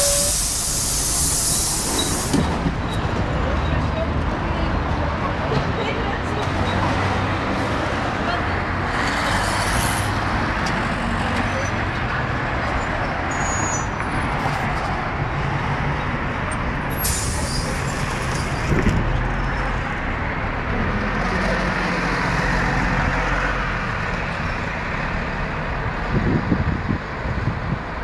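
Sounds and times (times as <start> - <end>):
brief high hiss: 0.0 - 2.4
bus engine droning: 0.0 - 28.0
road noise: 0.0 - 28.0.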